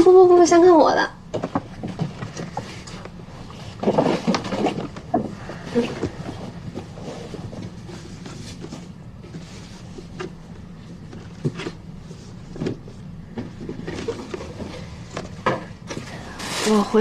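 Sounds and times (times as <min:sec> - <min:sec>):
low steady hum: 0:00.0 - 0:17.0
gift package rustling: 0:16.2 - 0:17.0.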